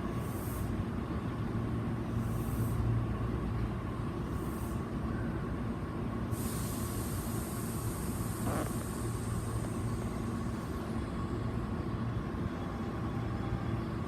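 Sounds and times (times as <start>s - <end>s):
electric train rumble: 0.0s - 14.0s
high air hisses: 0.2s - 0.8s, 6.3s - 10.8s.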